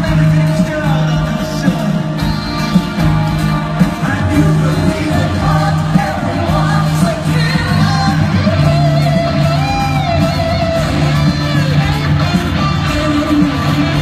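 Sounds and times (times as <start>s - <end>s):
live rock band playing: 0.0s - 14.0s
person singing: 3.8s - 10.6s, 12.6s - 14.0s.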